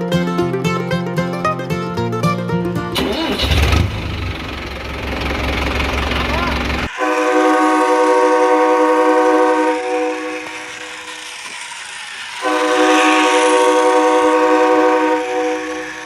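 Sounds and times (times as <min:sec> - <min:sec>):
train horn blasts: 0:06.9 - 0:11.7, 0:12.3 - 0:16.0.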